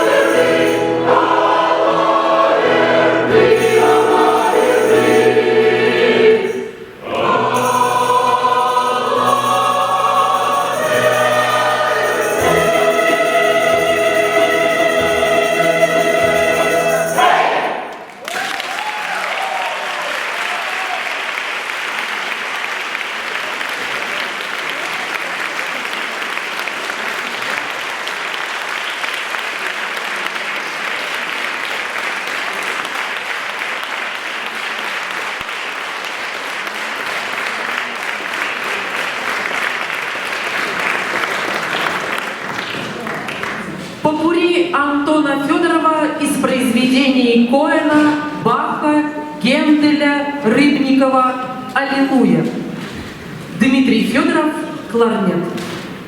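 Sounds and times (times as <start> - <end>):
choir singing: 0.0 - 18.1
audience applause: 17.2 - 44.0.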